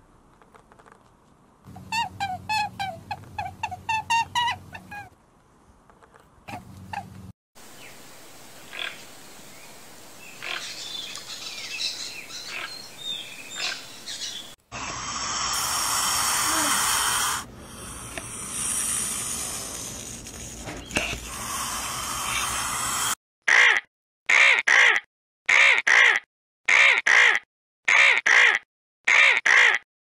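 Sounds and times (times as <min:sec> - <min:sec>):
bird calls and chirps: 0:08.6 - 0:14.6.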